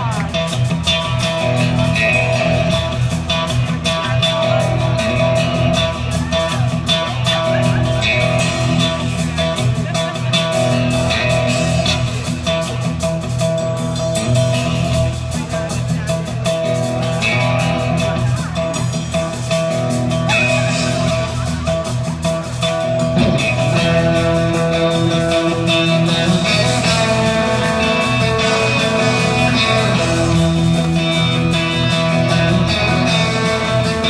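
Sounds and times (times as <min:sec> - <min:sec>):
bass guitar: 0:00.0 - 0:34.0
electric guitar: 0:00.0 - 0:34.0
rock band playing: 0:00.0 - 0:34.0.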